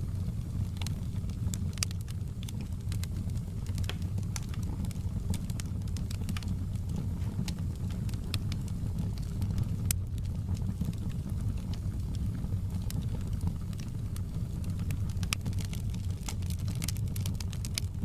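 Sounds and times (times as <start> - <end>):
fireplace fire crackling: 0.0 - 18.0.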